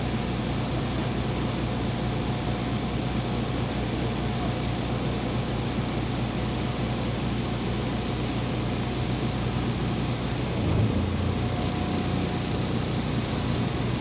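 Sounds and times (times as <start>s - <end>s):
bus engine hum: 7.6s - 14.0s
road noise: 9.0s - 14.0s.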